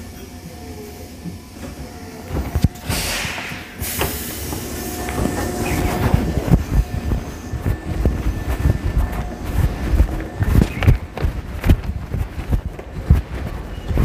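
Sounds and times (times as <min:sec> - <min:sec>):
train low rumble with knocks: 0:00.0 - 0:14.0
compressed air hissing: 0:00.4 - 0:09.5
short loud air blast: 0:02.8 - 0:04.8.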